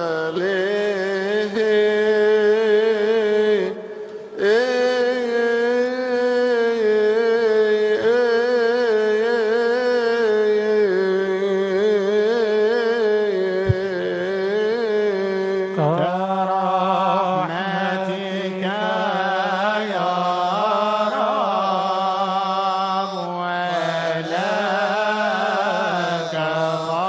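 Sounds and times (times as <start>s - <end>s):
man singing a chant: 0.0s - 27.0s.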